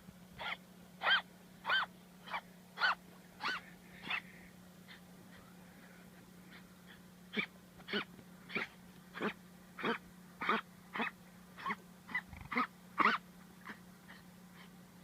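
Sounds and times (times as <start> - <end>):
dog wheezing: 3.4 - 5.0.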